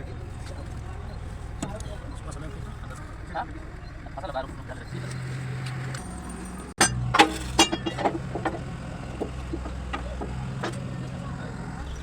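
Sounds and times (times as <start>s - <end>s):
low engine hum: 0.0s - 12.0s
metal tools clinking and knocking: 6.0s - 10.8s.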